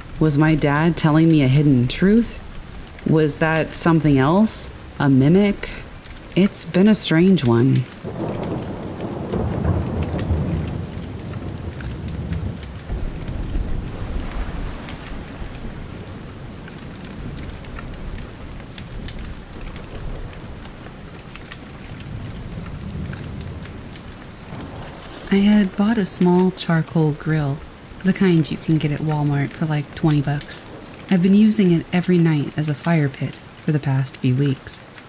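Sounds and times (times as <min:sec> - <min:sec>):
steady rain: 0:00.0 - 0:35.0
thunder rolling: 0:07.8 - 0:31.1.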